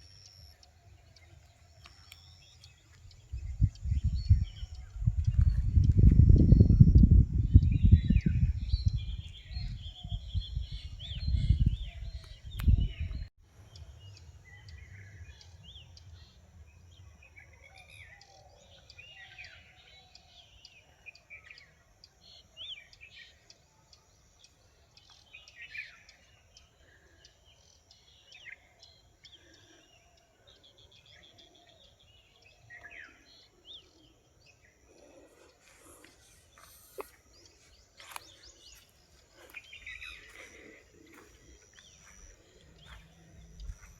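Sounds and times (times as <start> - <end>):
birds chirping: 0.0 - 43.9.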